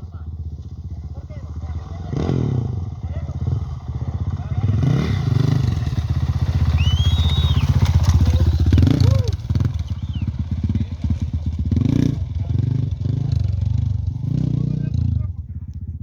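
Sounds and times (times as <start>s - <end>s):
motorcycle engine running: 0.0s - 16.0s
high whistle-like notes: 6.6s - 8.1s.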